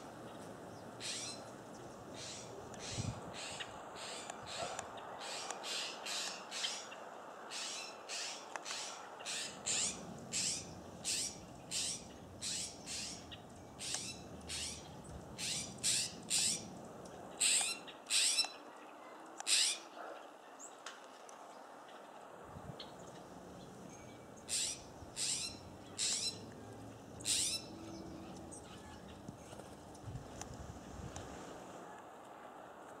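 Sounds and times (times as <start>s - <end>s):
songbirds sharp high calls: 0.3s - 16.7s, 17.3s - 18.6s, 19.4s - 20.0s, 22.8s - 29.6s.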